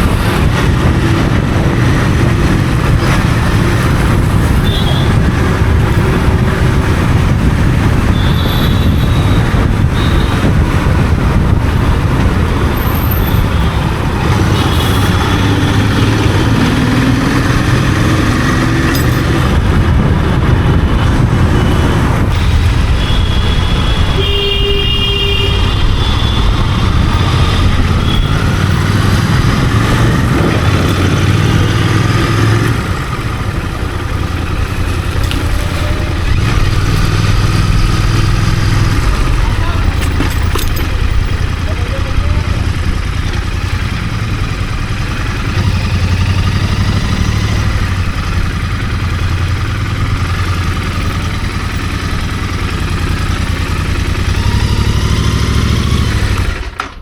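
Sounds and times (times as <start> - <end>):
motorcycle engine running: 0.0 - 57.0
road and wind noise: 0.0 - 57.0
vehicle horn: 4.5 - 5.3, 8.1 - 10.6, 14.3 - 15.6, 22.4 - 26.8.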